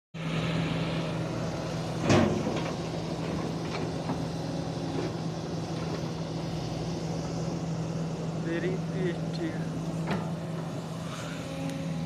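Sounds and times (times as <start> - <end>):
heavy diesel machinery droning: 0.2 - 12.0.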